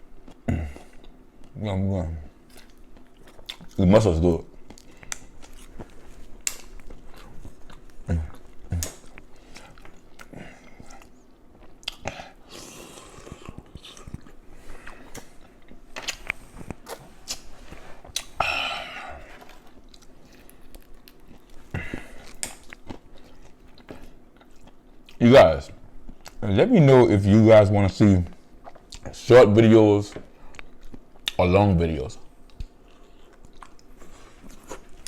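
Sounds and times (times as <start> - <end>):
person chewing wetly: 0.1 - 1.6, 2.4 - 3.9, 4.5 - 25.2, 26.0 - 26.4, 28.4 - 29.2, 30.1 - 31.4, 32.4 - 35.0.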